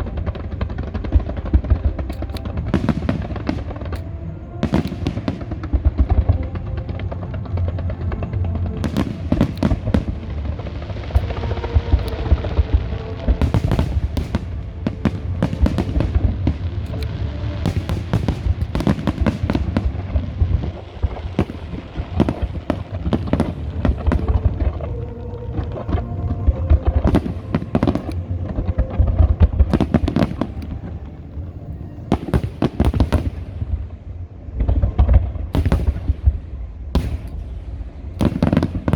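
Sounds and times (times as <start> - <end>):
fireworks bursts and crackling bangs: 0.0 - 38.9
music playing: 0.0 - 38.9.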